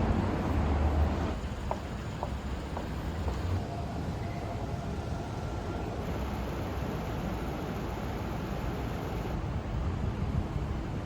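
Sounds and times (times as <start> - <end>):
passing vehicles rumble: 0.0 - 7.0.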